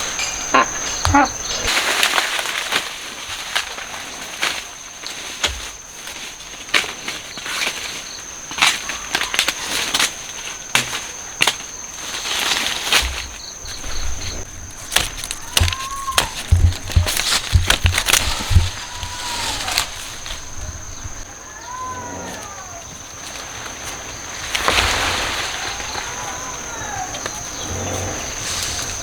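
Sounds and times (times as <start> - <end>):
cane stalks snapping: 0.0 - 21.3
dry leaves rustling: 0.0 - 27.6
high insect whine: 0.0 - 29.0.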